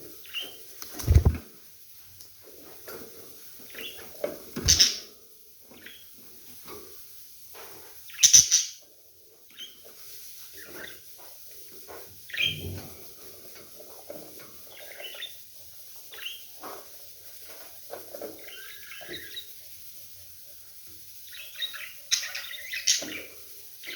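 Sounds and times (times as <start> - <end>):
budgerigars chirping: 4.6 - 5.1, 8.1 - 8.8.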